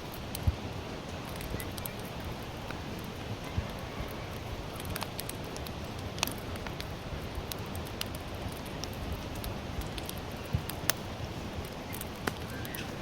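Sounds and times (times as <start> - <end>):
fire crackles and pops: 0.0 - 13.0
firewood burning with low rush: 0.0 - 13.0.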